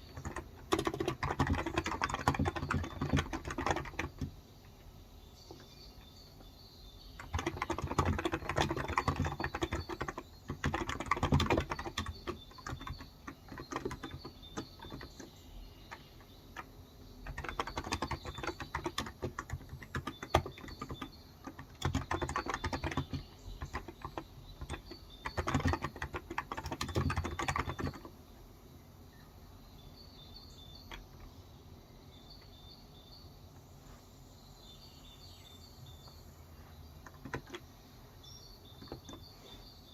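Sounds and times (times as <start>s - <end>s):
typing on a keyboard: 0.0s - 4.4s, 7.0s - 28.2s, 37.0s - 37.7s, 38.7s - 39.4s
faint bird chirps: 0.0s - 39.9s.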